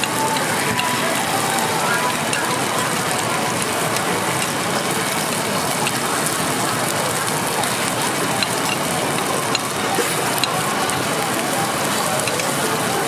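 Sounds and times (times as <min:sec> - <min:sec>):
food sizzling in oil: 0:00.0 - 0:13.0
metal skewers ticking on pan: 0:00.0 - 0:13.0.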